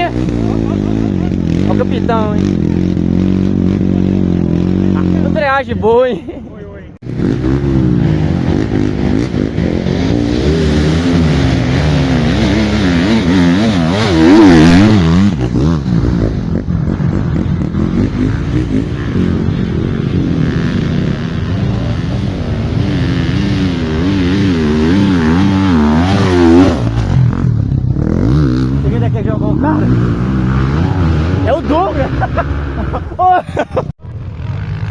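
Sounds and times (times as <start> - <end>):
motorcycle engines revving: 0.0 - 34.9.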